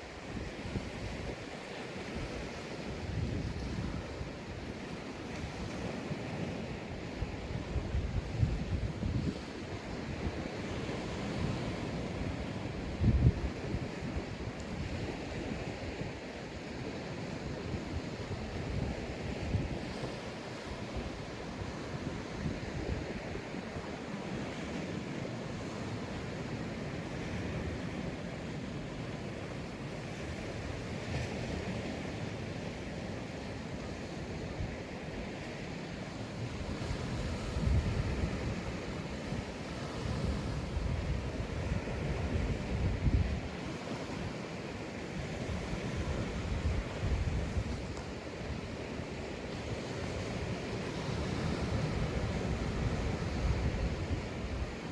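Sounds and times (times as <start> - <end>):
sea waves breaking on beach: 0.0 - 54.9
wind buffeting microphone: 0.2 - 16.2, 36.3 - 44.4, 45.3 - 48.8, 49.7 - 54.9.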